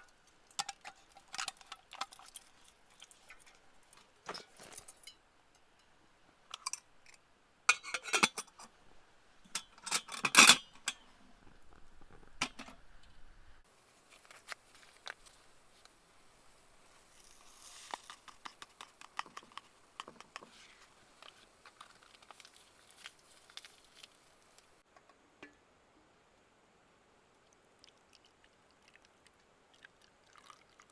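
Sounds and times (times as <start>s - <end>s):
clicks and knocks of cooking gear: 0.0s - 5.2s, 6.5s - 8.7s, 17.1s - 25.6s
soft rustling and scraping: 13.7s - 24.8s.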